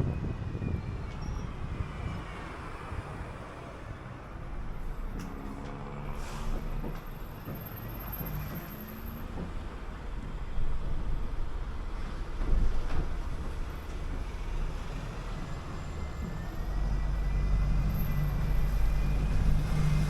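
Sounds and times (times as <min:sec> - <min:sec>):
bus engine running: 0:00.0 - 0:20.0
road rumble: 0:00.0 - 0:20.0.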